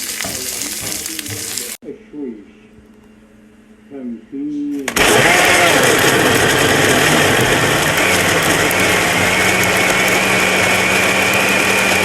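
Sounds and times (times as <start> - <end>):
electric motor whining: 4.8 - 12.0.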